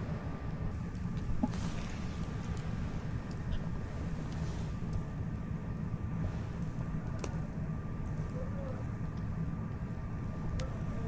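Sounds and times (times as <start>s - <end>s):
steady low rumble: 0.0s - 11.0s
campfire crackling and popping: 6.5s - 11.0s.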